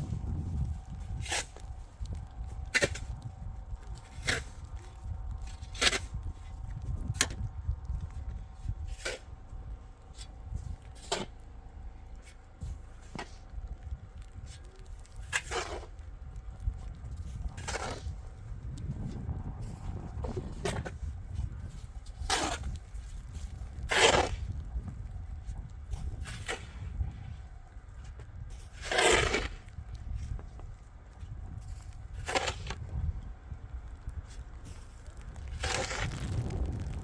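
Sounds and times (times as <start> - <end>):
snow shovel scraping snow: 0.0 - 1.7, 2.7 - 3.1, 11.0 - 11.4, 15.2 - 15.9, 17.3 - 18.2, 21.7 - 24.5, 26.2 - 26.9, 28.6 - 29.7, 31.7 - 32.8, 34.7 - 37.0
wind rumble on microphone: 0.0 - 37.0.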